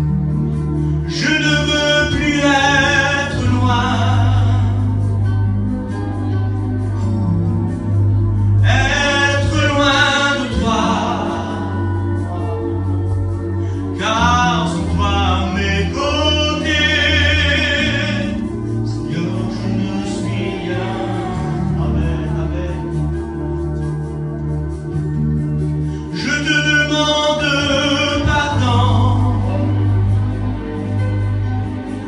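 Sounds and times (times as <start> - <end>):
held low accompaniment chords: 0.0 - 32.0
worship song singing: 1.1 - 5.2, 8.6 - 23.6, 25.9 - 31.5.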